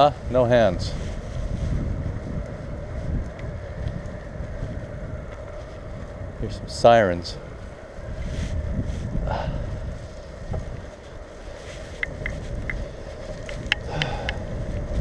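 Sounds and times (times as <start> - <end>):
wind and road rumble: 0.0 - 15.0
light ticks: 3.2 - 4.2, 11.9 - 14.9.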